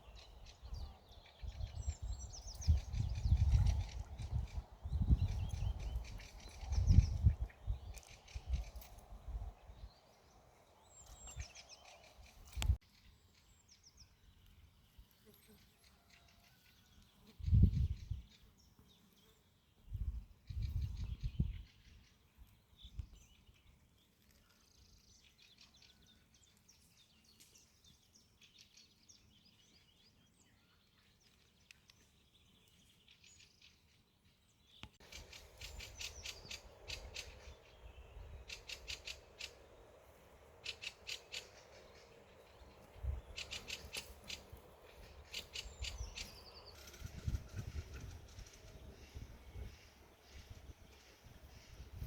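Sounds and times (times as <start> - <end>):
faint birdsong: 0.0 - 52.0
bird calls: 34.7 - 52.0.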